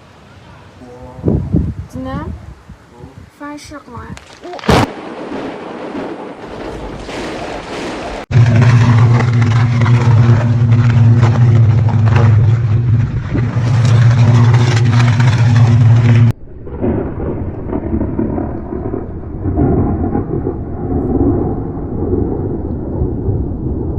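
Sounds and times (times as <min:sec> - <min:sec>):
muffled rumbling: 0:06.4 - 0:23.9
loud steady noise: 0:08.3 - 0:17.0.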